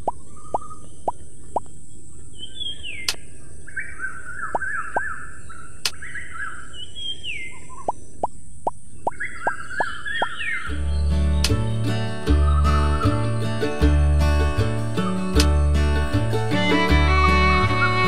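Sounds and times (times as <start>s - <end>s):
birds chirping: 0.0s - 18.0s
sharp clicks: 3.0s - 3.2s, 11.4s - 11.6s, 15.4s - 15.6s.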